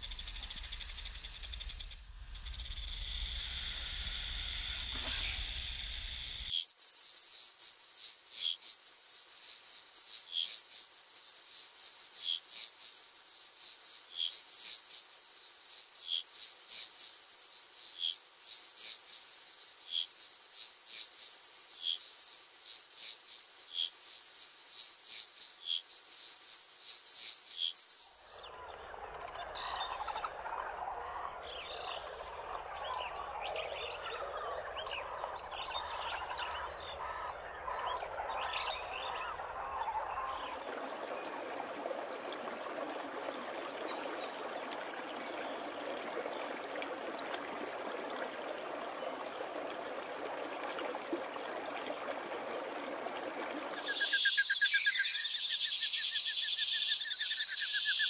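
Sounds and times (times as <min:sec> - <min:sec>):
repeating insect chirp: 0:00.0 - 0:28.4, 0:53.9 - 0:58.0
insect chorus drone: 0:00.0 - 0:41.5, 0:53.6 - 0:58.0.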